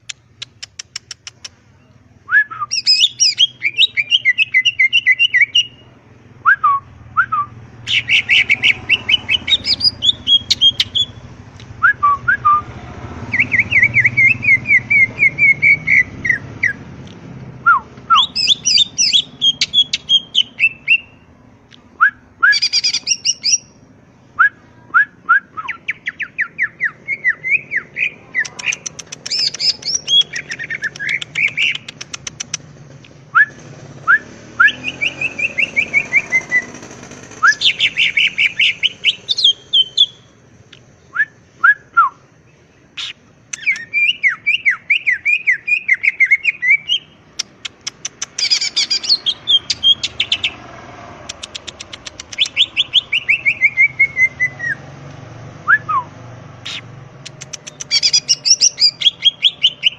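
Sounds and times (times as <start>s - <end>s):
bird singing chirps and whistles: 1.8s - 11.2s, 13.3s - 16.8s, 17.6s - 21.2s, 22.0s - 23.8s, 24.4s - 32.0s, 33.3s - 40.3s, 43.0s - 47.5s, 48.3s - 50.6s, 52.0s - 54.9s, 55.6s - 59.9s.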